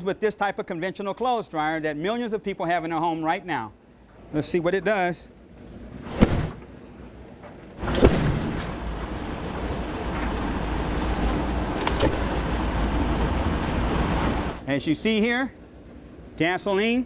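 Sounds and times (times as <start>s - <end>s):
fire igniting with whoosh: 6.0s - 6.7s, 7.8s - 14.6s
gasoline spraying: 6.0s - 7.0s, 7.8s - 14.6s.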